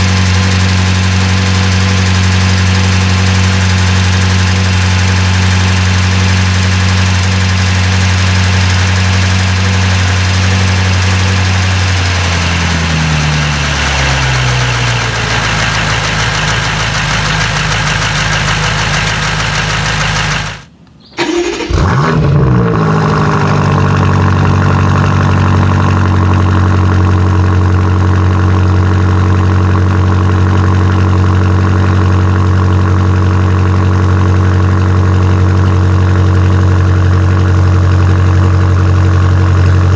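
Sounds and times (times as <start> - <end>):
car engine fast idle: 0.0 - 22.5
car engine starting: 0.0 - 39.9.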